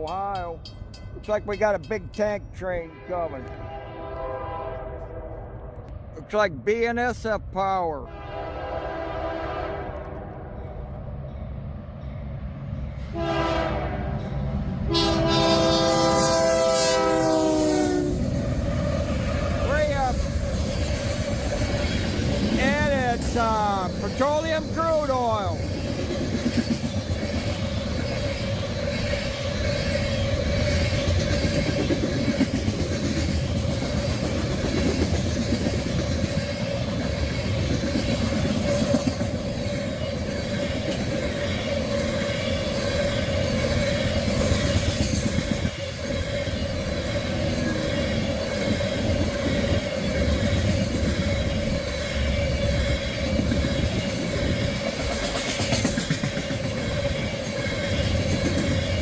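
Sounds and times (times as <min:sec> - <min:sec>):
train wheels rumbling on rails: 0:00.0 - 0:08.1, 0:08.8 - 0:59.0
wheels clacking over rail joints: 0:18.2 - 0:59.0.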